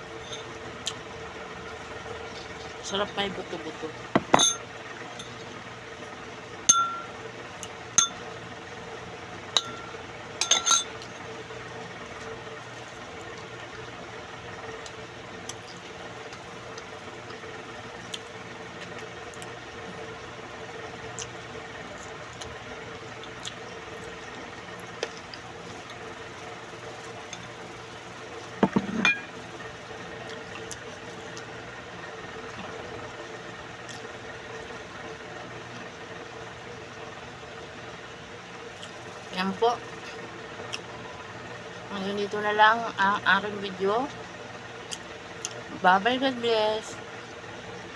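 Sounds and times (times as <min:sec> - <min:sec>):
steady low hum: 0:00.0 - 0:47.9
cutlery clinking on dishes: 0:04.2 - 0:04.6, 0:10.4 - 0:10.9.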